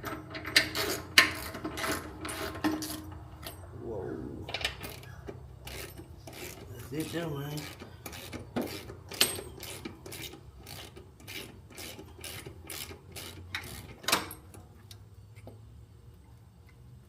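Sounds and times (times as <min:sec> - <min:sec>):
ratchet wrench rasping: 0:04.7 - 0:14.1.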